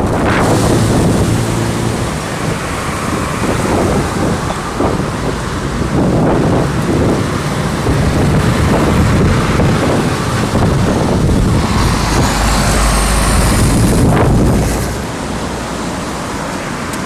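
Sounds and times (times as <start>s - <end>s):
wind buffeting microphone: 0.0s - 16.4s.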